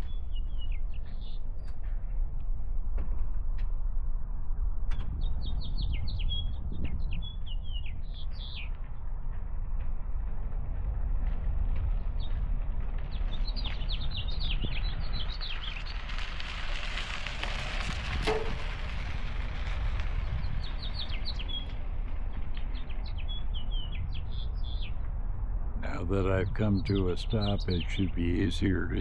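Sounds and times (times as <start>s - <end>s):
small birds chirping: 0.0s - 1.9s, 4.9s - 9.1s, 12.0s - 16.4s, 20.0s - 25.2s, 25.8s - 29.0s
wind rumble on microphone: 0.0s - 29.0s.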